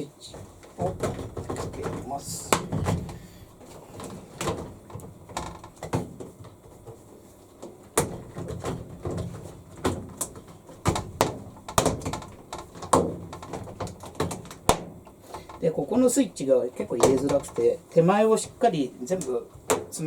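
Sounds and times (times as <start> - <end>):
hard plastic clicks and knocks: 8.0 - 15.6.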